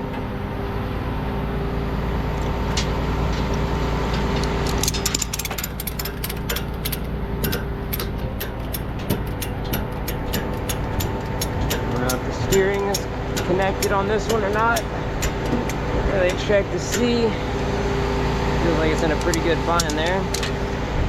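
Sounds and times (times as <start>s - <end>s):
truck engine idling: 0.0s - 21.0s
ratchet strap clicking: 4.3s - 17.1s.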